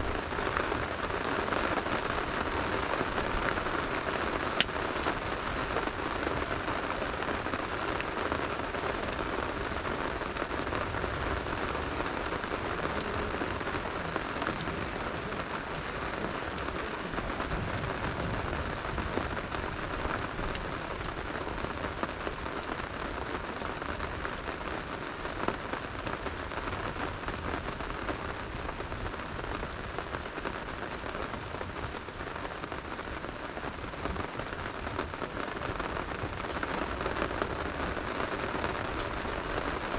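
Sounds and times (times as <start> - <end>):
campfire pops and crackles: 0.0 - 39.9
steady rain falling: 0.0 - 39.9.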